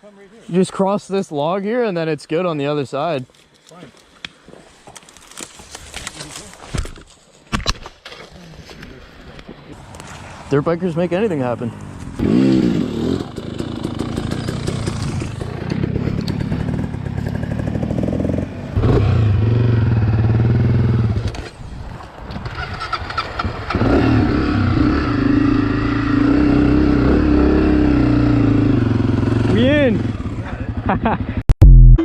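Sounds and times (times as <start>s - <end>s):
dirt bike engines revving: 9.8s - 21.5s, 22.6s - 31.4s.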